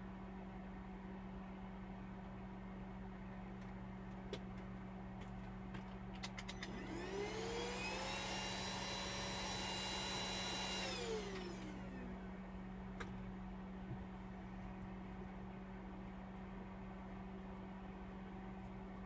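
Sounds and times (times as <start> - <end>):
small electric motor whining: 6.6 - 12.2.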